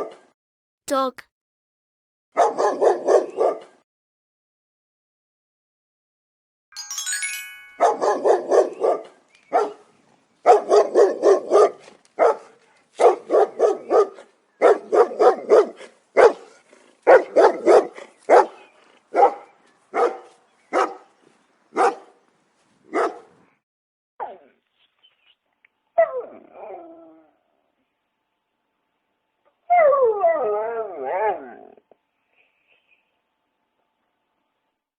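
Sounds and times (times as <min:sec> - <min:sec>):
dog barking: 0:02.4 - 0:03.8, 0:07.9 - 0:09.8, 0:10.4 - 0:21.1, 0:21.7 - 0:22.1, 0:22.9 - 0:23.3
short musical chime: 0:06.8 - 0:08.4.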